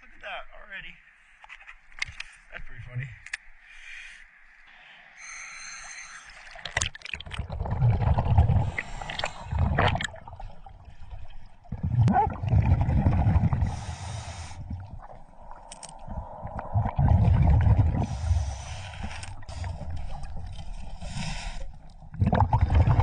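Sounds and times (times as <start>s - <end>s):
scuba regulator hissing inhales: 3.6s - 6.5s, 8.6s - 9.6s, 13.6s - 14.9s, 17.9s - 21.9s
exhaled bubbles gushing: 6.4s - 21.0s, 21.7s - 23.0s.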